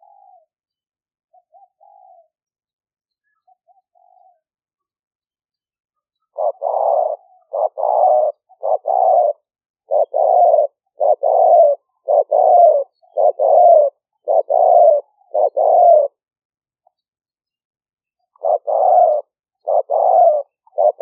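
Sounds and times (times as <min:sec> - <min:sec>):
dove cooing: 0:00.0 - 0:00.5, 0:01.3 - 0:02.4, 0:03.3 - 0:04.5, 0:06.2 - 0:16.2, 0:18.2 - 0:21.0.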